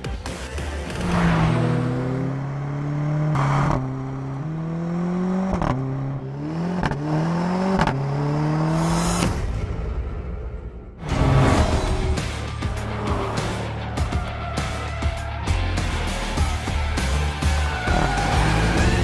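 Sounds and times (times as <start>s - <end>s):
car engine accelerating hard: 1.0s - 9.4s.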